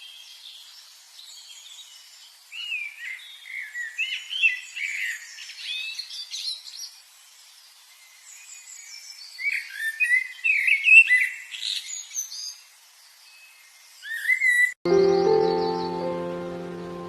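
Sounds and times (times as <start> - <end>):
birds chirping and singing: 13.4 - 16.7.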